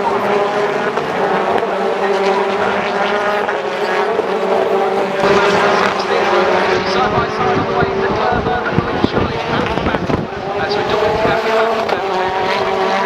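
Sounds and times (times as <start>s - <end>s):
racing car engines at high revs: 0.0s - 13.0s.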